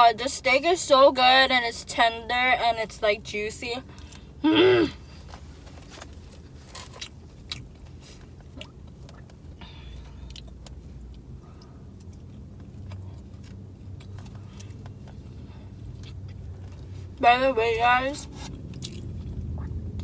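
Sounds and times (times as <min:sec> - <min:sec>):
low hum in car: 0:00.0 - 0:20.0
person chewing: 0:06.1 - 0:17.1, 0:18.4 - 0:20.0.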